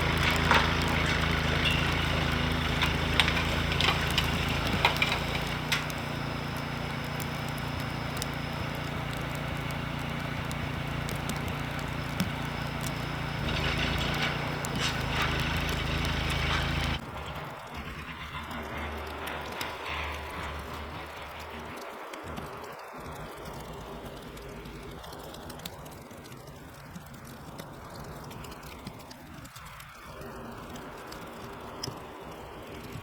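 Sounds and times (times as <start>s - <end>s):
scattered clicks and knocks: 0.0s - 33.0s
small engine running: 0.0s - 33.0s.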